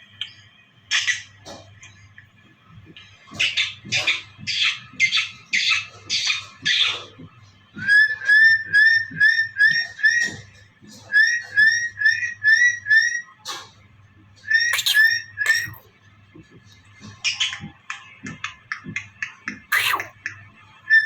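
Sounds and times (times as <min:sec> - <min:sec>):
parrot squawking: 0:14.8 - 0:15.8, 0:19.7 - 0:20.1
parrot whistling: 0:14.8 - 0:15.8, 0:19.7 - 0:20.1.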